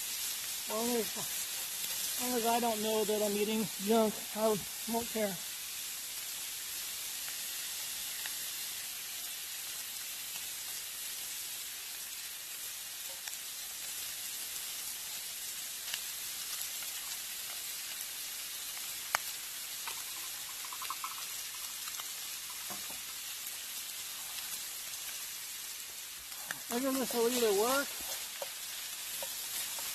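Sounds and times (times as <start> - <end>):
food sizzling in a pan: 0.0 - 29.9
spatula clicking and scraping: 27.3 - 29.9.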